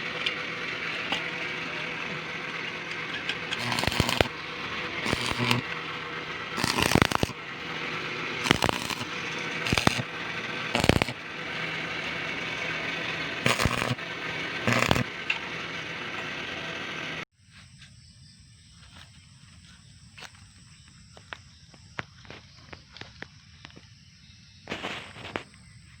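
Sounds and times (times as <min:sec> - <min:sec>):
thin high whine: 0:00.0 - 0:17.3
crackling hiss: 0:02.6 - 0:14.0, 0:14.6 - 0:15.2.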